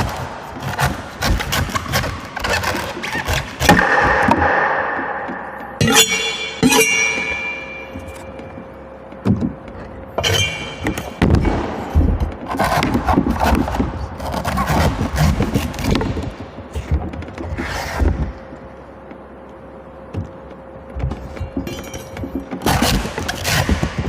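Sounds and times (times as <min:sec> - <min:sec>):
ringing metallic tone: 0:03.8 - 0:08.9
metal blade chopping coconut: 0:05.8 - 0:08.3.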